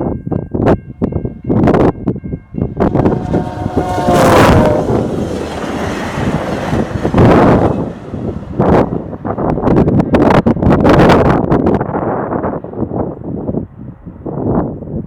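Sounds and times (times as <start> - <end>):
wind buffeting microphone: 0.0 - 15.0
train wheels rushing on rails: 0.1 - 11.9.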